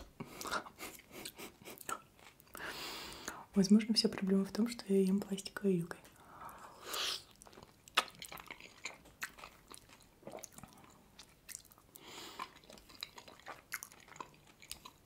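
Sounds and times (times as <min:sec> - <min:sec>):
wet chewing sounds: 0:00.0 - 0:02.6, 0:07.2 - 0:15.0.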